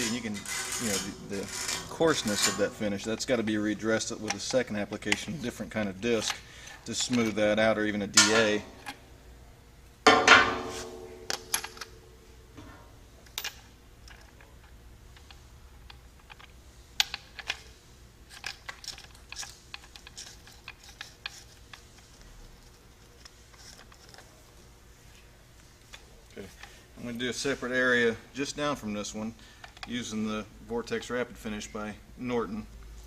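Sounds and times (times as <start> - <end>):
metal tools clicking and tapping: 8.2 - 9.0, 10.1 - 12.0
ringing metal clank: 10.1 - 11.7.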